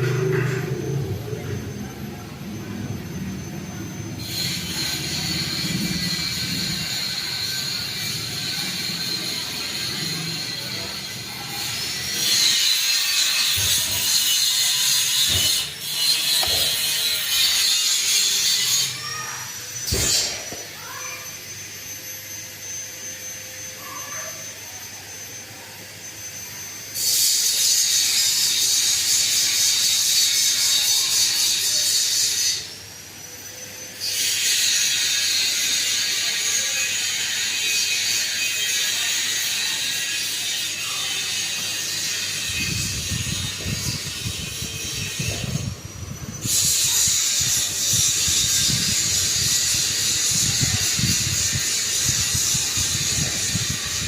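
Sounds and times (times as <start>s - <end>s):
ceiling fan rattling: 41.0s - 54.0s.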